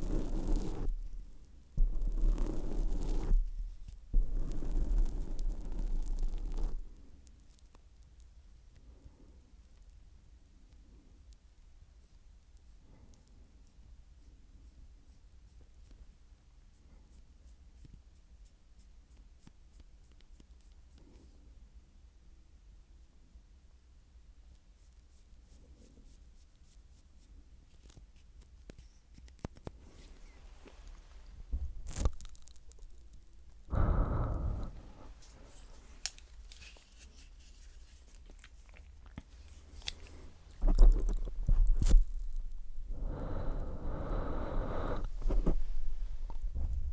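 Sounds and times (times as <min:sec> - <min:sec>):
low thumps against microphone: 0:00.9 - 0:04.6, 0:31.4 - 0:31.9, 0:40.6 - 0:42.9, 0:44.9 - 0:46.9
steady low hum: 0:33.0 - 0:36.6, 0:39.3 - 0:46.9.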